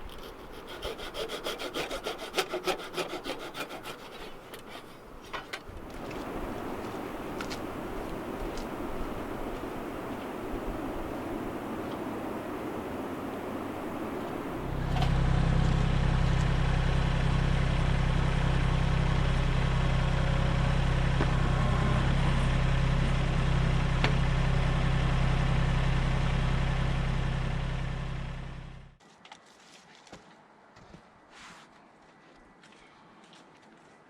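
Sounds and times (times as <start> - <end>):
engine idling: 13.3 - 29.0.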